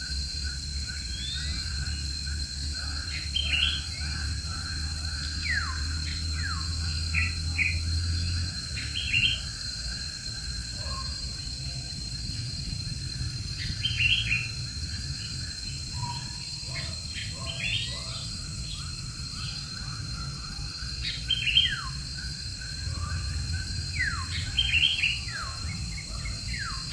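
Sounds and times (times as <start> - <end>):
birds chirping: 5.4 - 18.9, 19.5 - 26.9.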